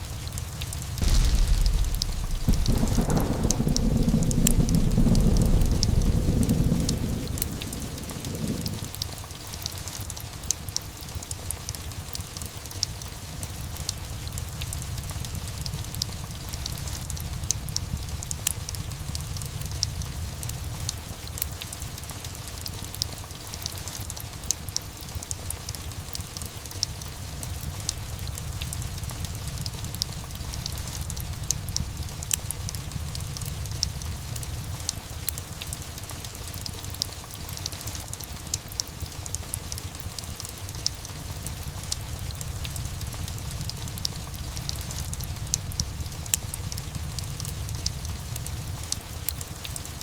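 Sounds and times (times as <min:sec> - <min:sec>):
heavy rain: 0:00.0 - 0:50.0
wood fire crackling: 0:00.0 - 0:50.0
loud rumble of thunder: 0:01.0 - 0:09.0.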